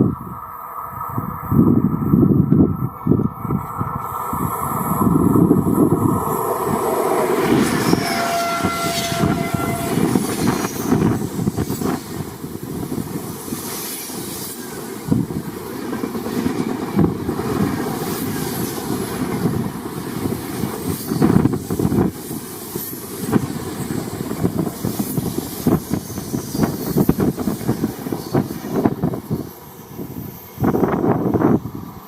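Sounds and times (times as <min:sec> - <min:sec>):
train wheels rumbling on rails: 0:00.0 - 0:32.0
train horn: 0:07.4 - 0:11.1.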